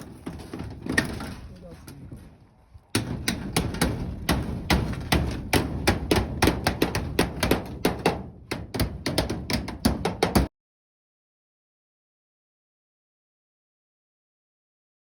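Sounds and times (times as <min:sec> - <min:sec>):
hammer striking metal: 0:03.0 - 0:10.5.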